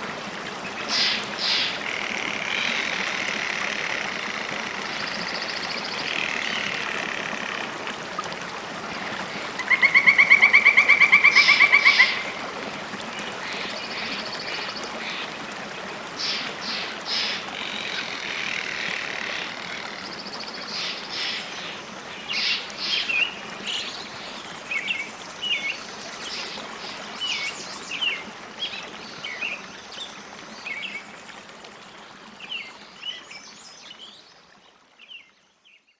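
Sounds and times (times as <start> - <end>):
flowing water: 0.0 - 35.9
bird trilling: 9.7 - 12.4.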